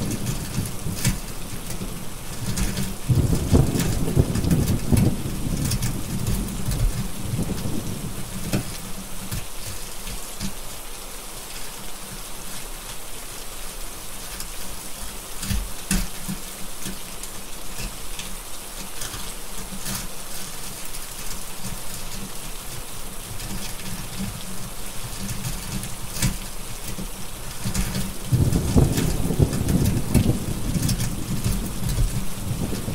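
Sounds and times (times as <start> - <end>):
steady rain: 0.0 - 32.9
rolling thunder: 3.0 - 8.2, 28.3 - 32.9
wood fire crackling: 23.1 - 32.9.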